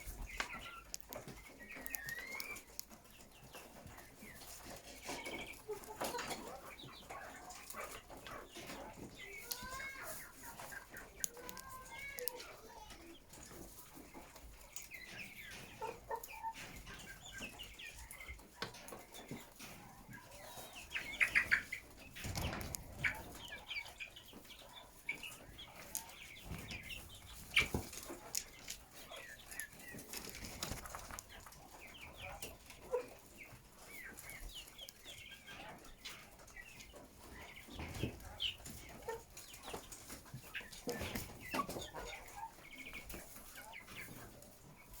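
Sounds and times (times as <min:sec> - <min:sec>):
chickens clucking: 0:00.0 - 0:45.0.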